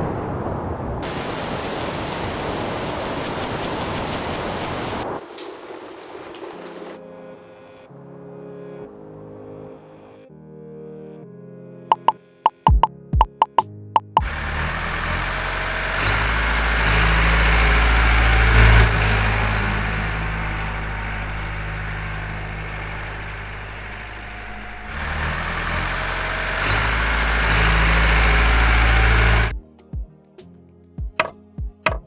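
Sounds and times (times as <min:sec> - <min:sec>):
heavy hiss: 0:01.0 - 0:05.0.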